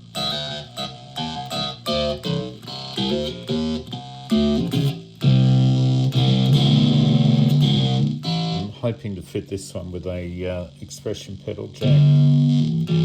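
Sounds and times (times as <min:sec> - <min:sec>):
electric ukulele picked notes: 0:00.0 - 0:08.8, 0:11.8 - 0:13.0.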